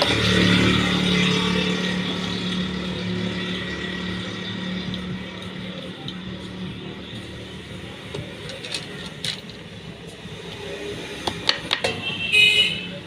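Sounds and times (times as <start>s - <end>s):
hard objects clicking and clinking: 8.0s - 9.8s.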